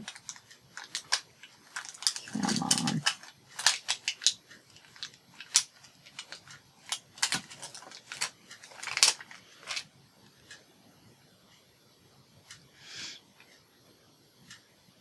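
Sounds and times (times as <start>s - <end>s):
paper crinkling and clicks: 0.0s - 9.9s.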